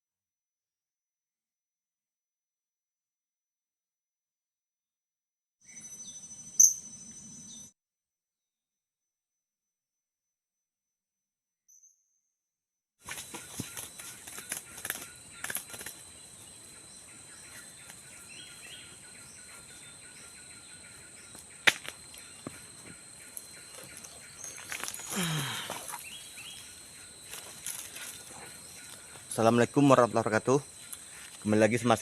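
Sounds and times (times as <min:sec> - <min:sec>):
faint high-pitched chirp: 0:05.6 - 0:07.8, 0:13.2 - 0:32.0
high insect drone: 0:13.1 - 0:32.0
small clicks: 0:13.8 - 0:16.0.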